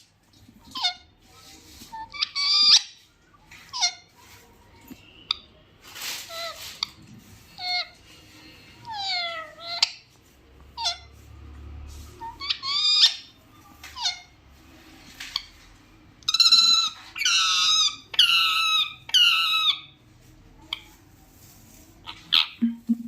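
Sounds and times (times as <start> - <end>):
small parrot squeaky calls: 0.6 - 4.4, 5.2 - 8.1, 8.8 - 11.2, 12.2 - 14.4, 16.3 - 20.0, 22.0 - 22.7.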